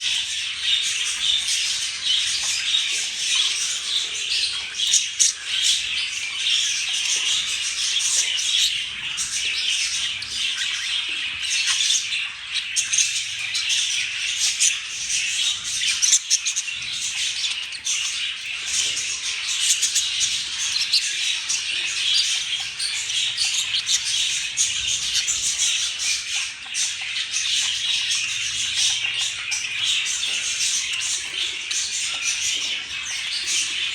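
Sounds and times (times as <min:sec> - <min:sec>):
budgerigars chattering: 0:00.0 - 0:33.9.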